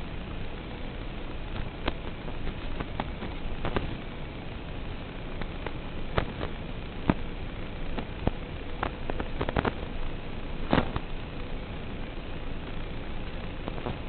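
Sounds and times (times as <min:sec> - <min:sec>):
sharp clicks and ticks: 0:05.4 - 0:09.9.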